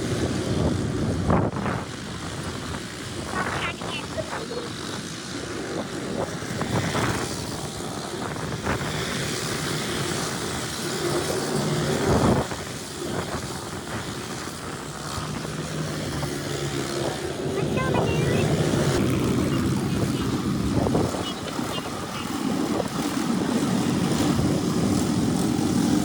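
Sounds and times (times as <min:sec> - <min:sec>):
racing engines passing: 0:14.8 - 0:26.0.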